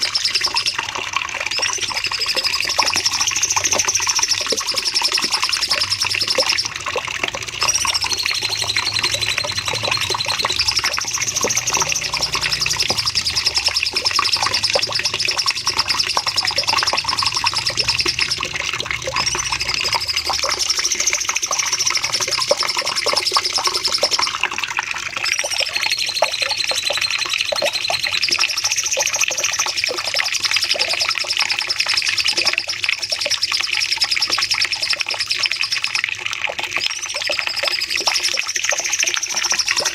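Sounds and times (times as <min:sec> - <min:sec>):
songbird chirping rapidly: 0:07.6 - 0:24.4.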